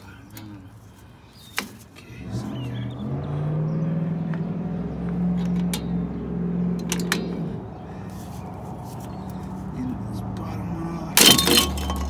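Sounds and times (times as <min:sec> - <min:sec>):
vehicle engine humming: 0:00.0 - 0:12.0
metal pliers clicking on springs: 0:06.8 - 0:07.4.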